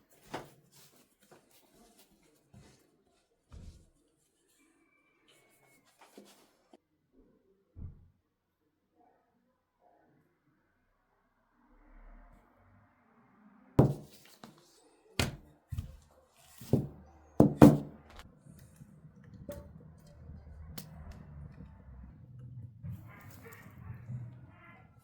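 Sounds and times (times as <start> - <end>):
hard thunks: 13.8 - 14.2, 16.8 - 18.0.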